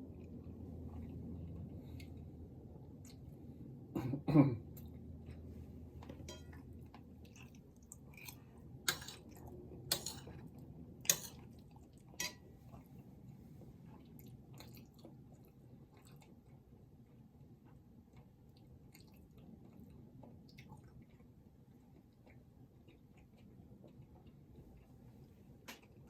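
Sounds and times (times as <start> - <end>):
close-up chewing and mouth sounds: 0.0 - 3.9, 4.7 - 26.0.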